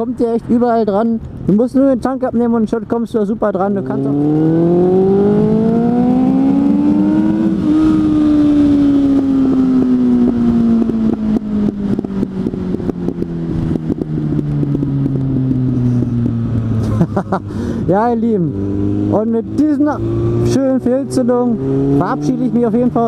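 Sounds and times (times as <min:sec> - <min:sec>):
motorcycle engine revving: 0:03.6 - 0:23.0.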